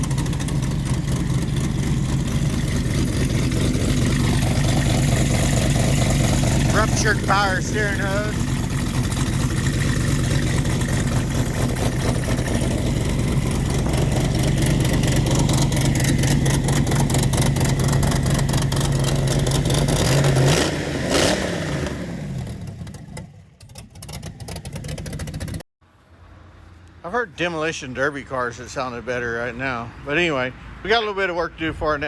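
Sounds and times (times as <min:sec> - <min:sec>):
race car engine running rough: 0:00.0 - 0:25.6.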